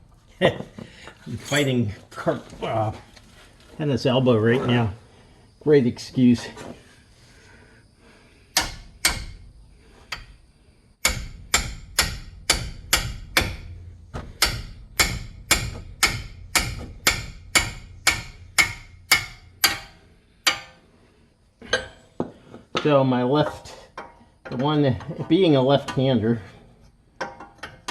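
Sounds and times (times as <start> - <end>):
hammer striking metal: 8.6 - 9.4, 11.0 - 20.8, 21.7 - 22.2.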